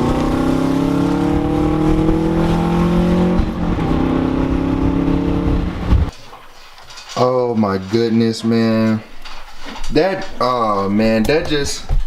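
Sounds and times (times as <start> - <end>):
car engine accelerating: 0.0 - 6.1.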